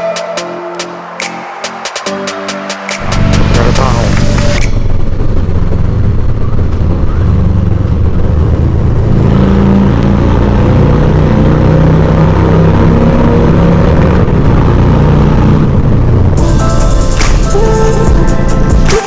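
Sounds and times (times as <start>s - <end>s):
motorcycle engine running: 3.1s - 12.3s.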